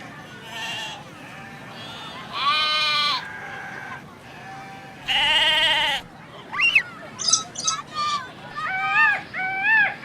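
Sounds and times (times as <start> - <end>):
animal bleating: 0.4 - 6.0.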